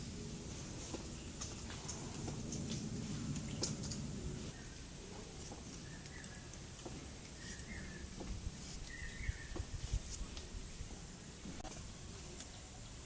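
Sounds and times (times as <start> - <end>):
steady high hiss: 0.0 - 13.0
bird chirping: 3.4 - 9.8.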